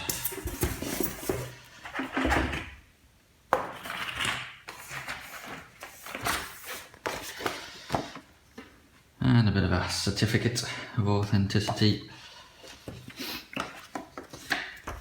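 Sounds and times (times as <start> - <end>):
paper rustling: 0.0 - 2.5, 3.8 - 8.1.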